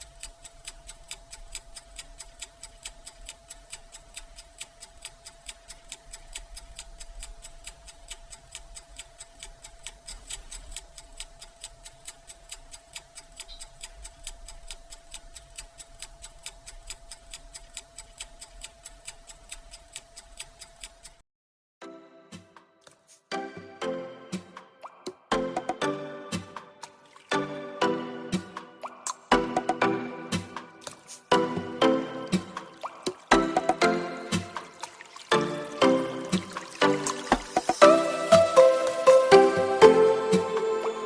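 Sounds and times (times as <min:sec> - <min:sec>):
regular ticking: 0:00.0 - 0:21.2, 0:29.2 - 0:41.0.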